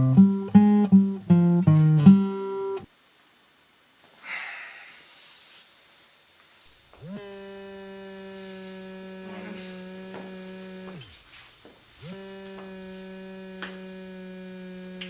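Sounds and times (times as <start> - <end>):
mobile phone vibrating: 7.0 - 11.4, 12.0 - 15.0.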